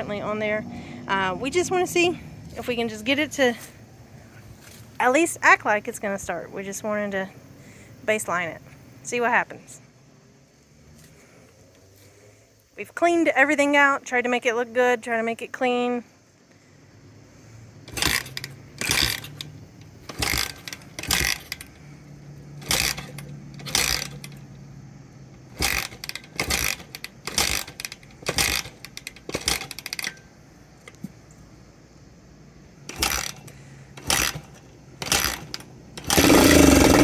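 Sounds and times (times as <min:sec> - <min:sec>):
motorcycle engine turning over: 0:17.8 - 0:31.3, 0:32.8 - 0:37.0
motorcycle engine running loudly: 0:36.0 - 0:37.0.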